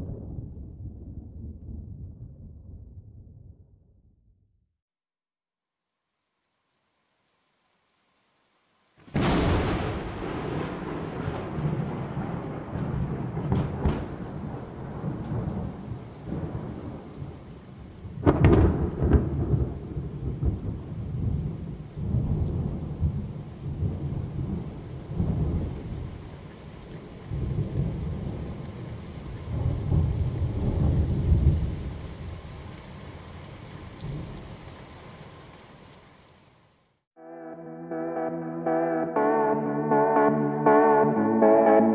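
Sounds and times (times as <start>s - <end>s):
low thunder rumbling: 0.0s - 4.0s, 9.1s - 26.2s, 27.2s - 32.5s
steady rain: 5.6s - 37.0s
sharp thunderclap: 9.1s - 17.2s, 18.2s - 26.0s.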